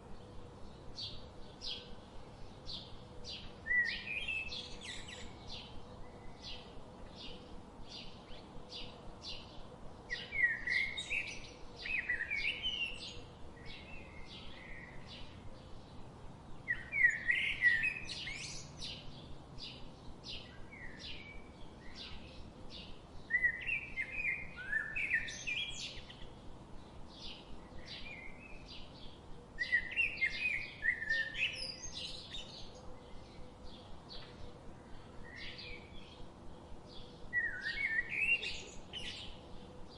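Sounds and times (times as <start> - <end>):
bird warbling song: 0.0 - 16.0, 16.6 - 39.9
birds chirping: 10.1 - 39.9.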